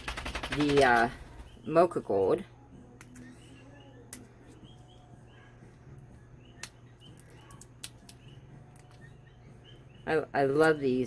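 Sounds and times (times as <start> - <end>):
faint bird chirps: 2.6 - 10.9
sharp clicks of small objects: 3.0 - 3.3, 6.6 - 9.0.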